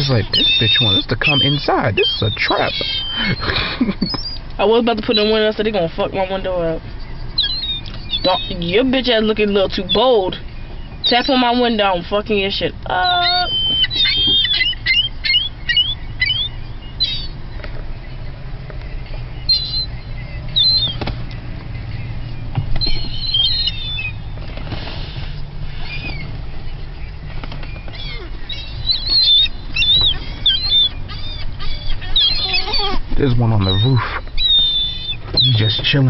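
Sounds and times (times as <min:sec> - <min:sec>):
gulls squealing: 0:00.0 - 0:36.0
wings flapping: 0:24.3 - 0:26.5, 0:27.3 - 0:32.3.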